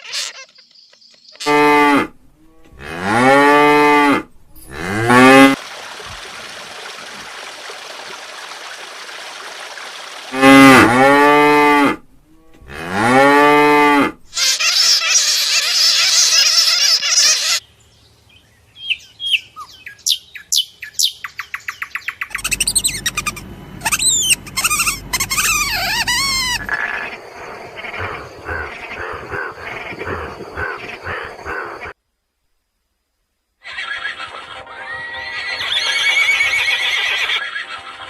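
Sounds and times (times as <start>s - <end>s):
bird calls: 18.4s - 31.9s.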